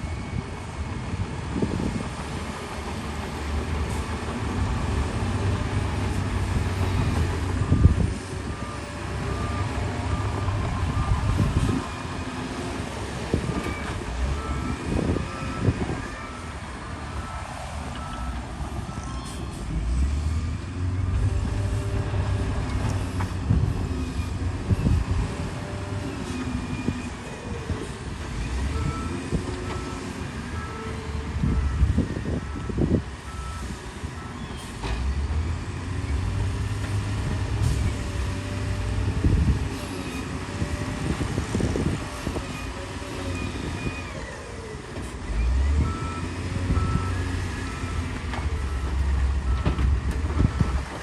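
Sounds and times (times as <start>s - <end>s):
heavy machinery engine rumble: 0.0s - 51.0s
reversing alarm beeping: 13.5s - 20.1s, 45.3s - 51.0s.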